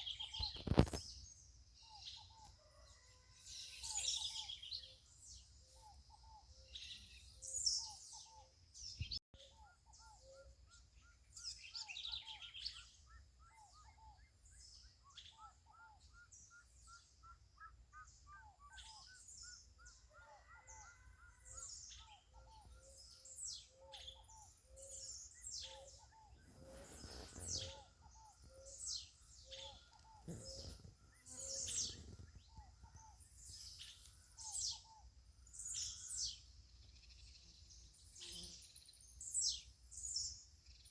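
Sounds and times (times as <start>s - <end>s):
birds chirping: 18.8s - 36.2s.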